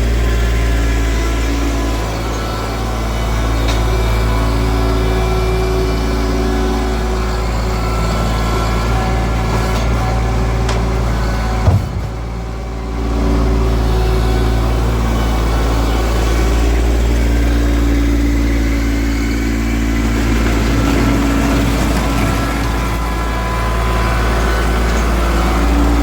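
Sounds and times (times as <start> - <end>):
diesel engine running: 0.0 - 26.0
sharp thump: 11.6 - 12.4.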